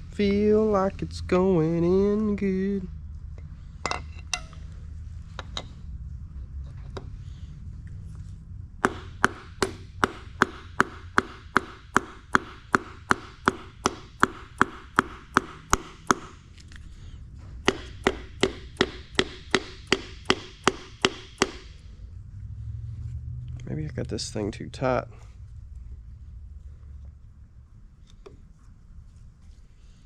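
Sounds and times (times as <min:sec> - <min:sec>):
taps on a metal piston: 0:08.8 - 0:16.4, 0:17.7 - 0:21.8.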